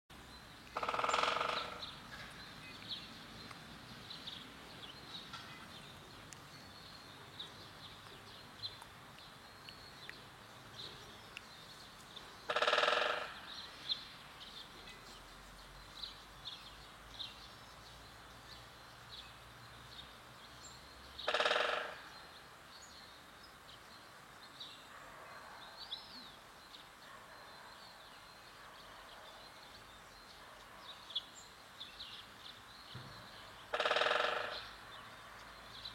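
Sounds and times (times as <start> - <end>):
loud bird calls: 0.7 - 2.8, 12.4 - 13.9, 21.2 - 22.4, 32.9 - 35.1.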